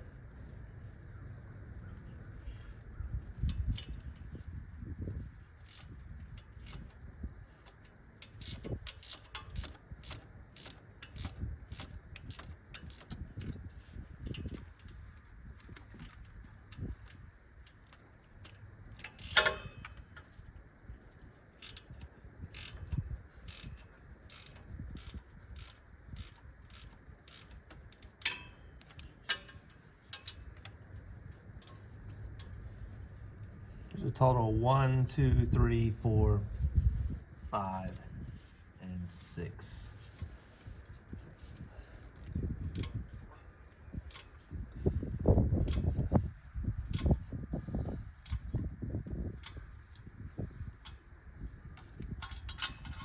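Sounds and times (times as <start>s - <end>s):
socket ratchet clicking: 6.6s - 6.9s, 7.6s - 13.2s, 22.6s - 29.5s.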